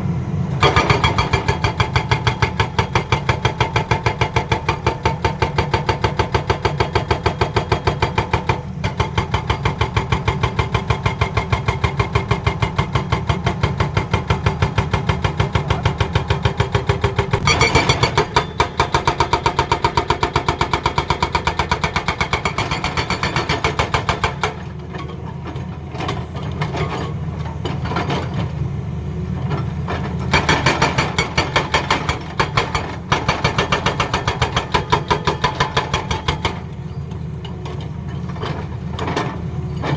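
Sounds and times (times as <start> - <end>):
hydraulic breaker hammering: 0.6 - 24.7, 30.3 - 36.7.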